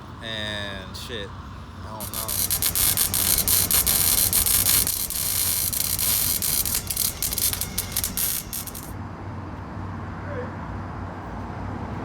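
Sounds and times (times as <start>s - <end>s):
steady low hum: 2.0s - 8.9s
crackling hiss with rapid clicks: 2.0s - 9.0s.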